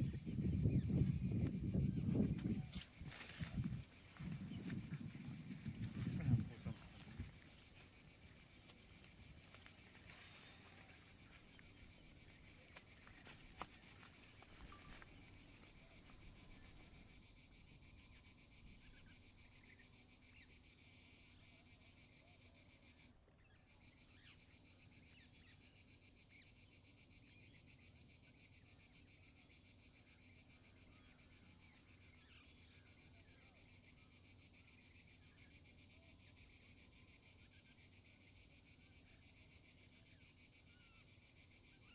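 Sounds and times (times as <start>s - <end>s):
faint insect chorus: 0.0s - 41.9s.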